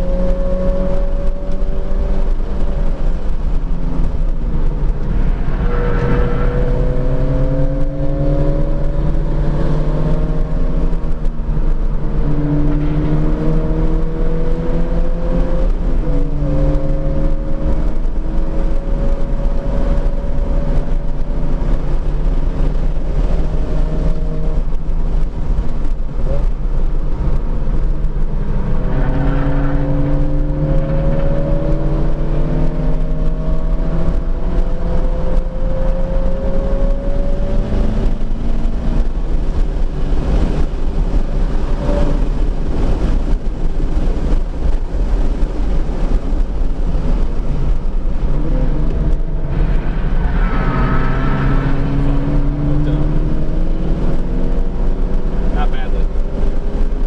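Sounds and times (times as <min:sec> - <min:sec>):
car engine accelerating: 0:00.0 - 0:57.0
road and wind rumble: 0:00.0 - 0:57.0.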